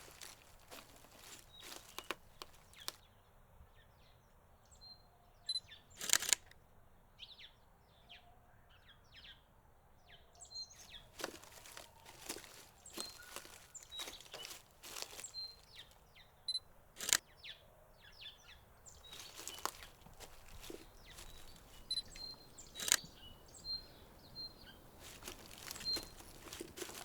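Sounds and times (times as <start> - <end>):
crunching clicks: 0.0 - 3.0, 6.0 - 6.6, 11.1 - 16.0, 17.0 - 17.2, 18.9 - 23.3, 24.9 - 27.0
birds chirping: 0.0 - 3.2, 10.4 - 27.0.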